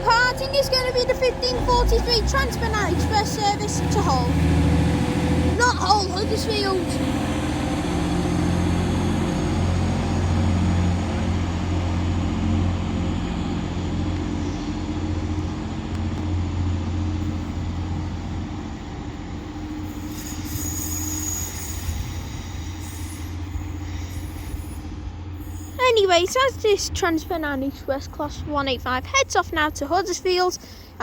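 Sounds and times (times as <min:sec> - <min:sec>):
diesel train engine throbbing: 0:00.0 - 0:31.0
high wheel squeal: 0:19.4 - 0:31.0.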